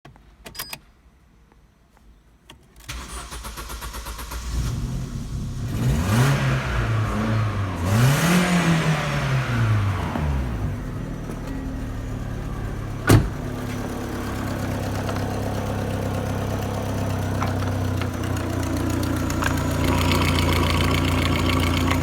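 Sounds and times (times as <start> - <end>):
car engine revving and idling: 2.9 - 22.0
starter motor cranking: 17.4 - 22.0.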